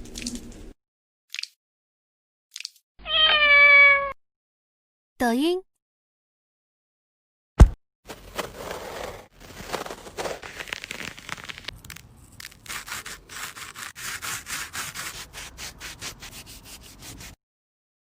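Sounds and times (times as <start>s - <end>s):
rapid rubbing strokes: 12.4s - 17.4s.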